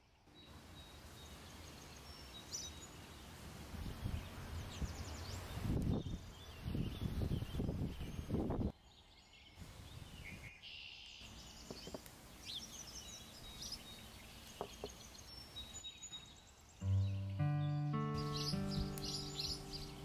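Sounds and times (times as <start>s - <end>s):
birds chirping: 11.2s - 20.0s
acoustic guitar music: 16.8s - 20.0s.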